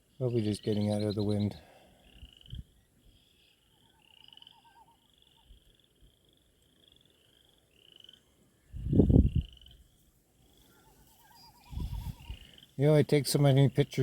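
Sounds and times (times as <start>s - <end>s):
frogs calling in trills: 0.1s - 12.9s
wind buffeting microphone: 8.7s - 9.7s, 11.6s - 12.4s.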